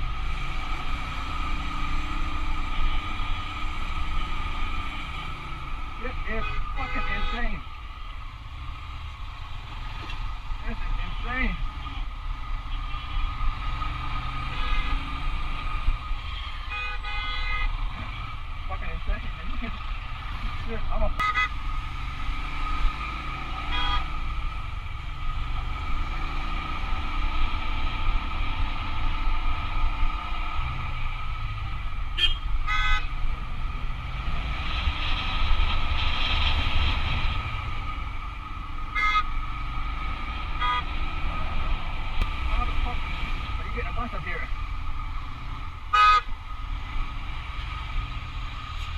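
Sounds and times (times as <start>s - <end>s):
wind and road noise: 0.0s - 48.9s
vehicle horn: 6.4s - 7.6s, 14.5s - 15.0s, 16.5s - 17.8s, 21.2s - 21.6s, 23.7s - 24.2s, 32.2s - 33.1s, 38.9s - 39.4s, 40.6s - 40.9s, 45.9s - 46.3s.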